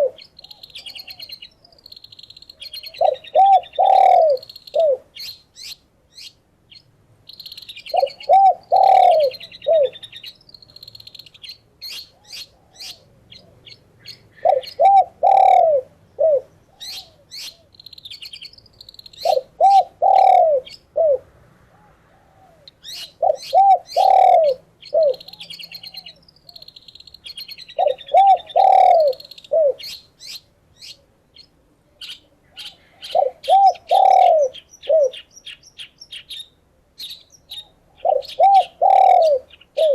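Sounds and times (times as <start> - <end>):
dove cooing: 0.0 - 1.9, 2.6 - 5.3, 7.9 - 10.4, 11.8 - 17.8, 19.2 - 26.7, 27.6 - 30.0, 32.4 - 35.3, 37.5 - 39.9
songbirds chirping and trilling: 0.0 - 39.9.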